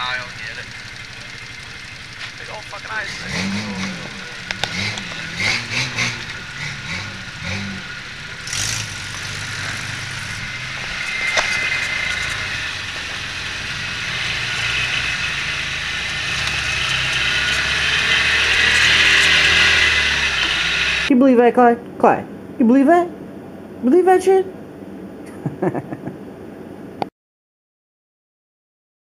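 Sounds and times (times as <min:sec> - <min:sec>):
pickup truck engine running: 0:00.0 - 0:21.1.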